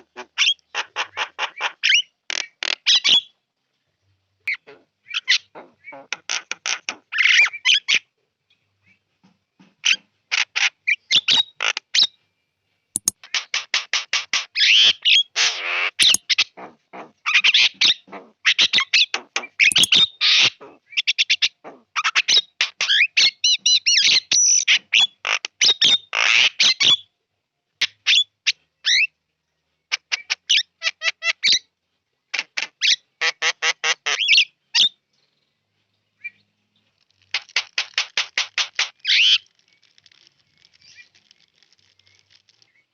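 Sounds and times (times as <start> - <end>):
bird chattering and whistling: 16.0 - 16.3, 19.6 - 20.2.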